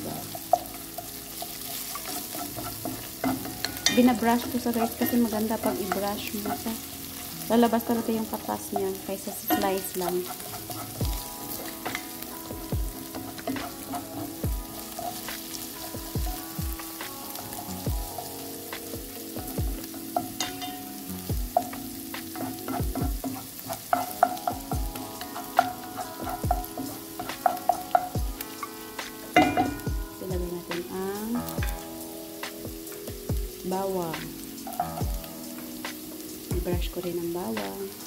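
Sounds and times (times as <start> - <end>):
wooden spatula scraping pan: 0.0 - 29.9
ginger sizzling in pan: 0.0 - 38.0
spatula tapping pan: 0.0 - 38.0.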